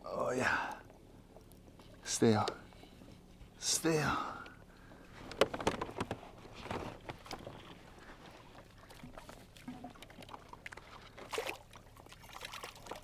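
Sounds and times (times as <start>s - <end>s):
small knocks: 5.1s - 10.9s
fish splashing water: 8.5s - 13.0s.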